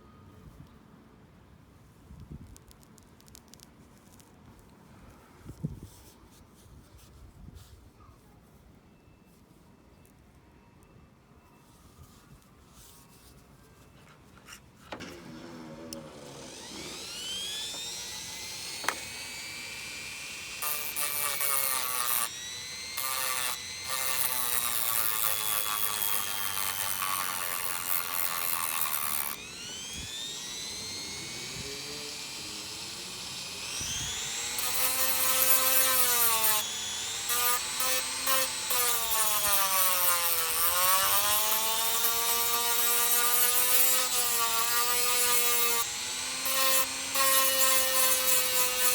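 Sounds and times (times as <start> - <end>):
power tool motor whine: 14.9 - 48.9.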